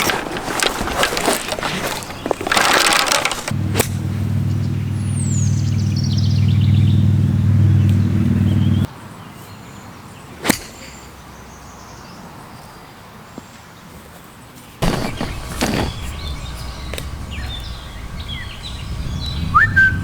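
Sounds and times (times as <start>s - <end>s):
vehicle engine humming: 1.6s - 8.9s, 14.8s - 20.0s
falling bird chirp: 14.8s - 20.0s.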